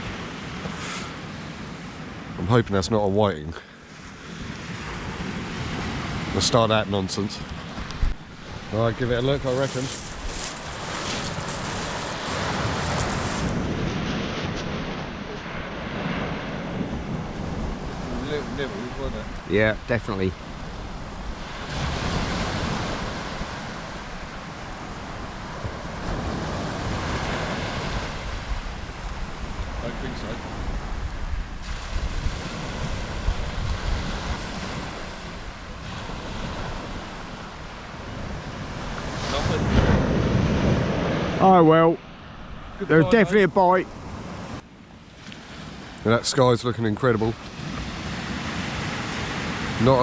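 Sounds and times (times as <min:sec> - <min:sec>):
sea surf breaking: 0:00.0 - 0:44.6, 0:45.3 - 0:50.0
wind buffeting microphone: 0:07.2 - 0:41.4.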